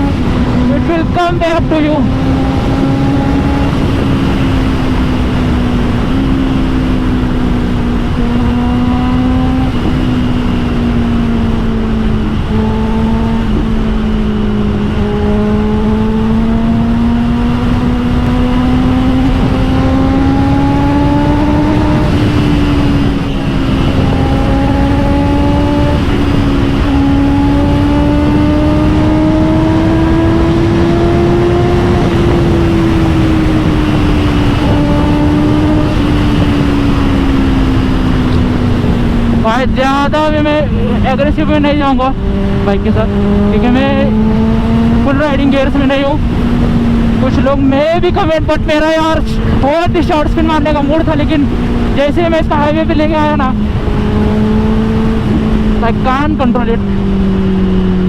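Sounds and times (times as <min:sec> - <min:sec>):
motorcycle engine cruising: 0:00.0 - 0:58.0
wind rush: 0:00.0 - 0:58.0.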